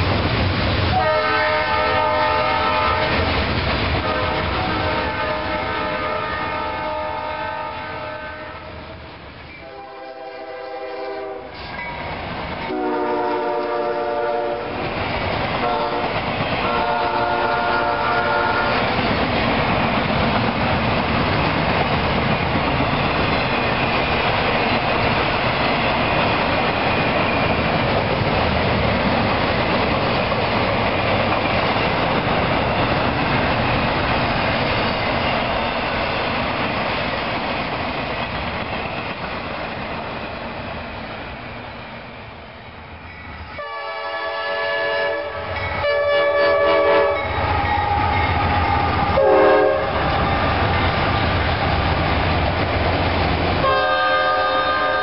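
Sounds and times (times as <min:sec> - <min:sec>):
locomotive horn blasts: 0:00.9 - 0:03.2, 0:04.0 - 0:08.8, 0:09.6 - 0:11.6, 0:12.7 - 0:14.8, 0:15.6 - 0:18.8, 0:43.6 - 0:48.0, 0:49.1 - 0:50.1, 0:53.6 - 0:55.0
freight train wheels clattering: 0:13.6 - 0:41.3.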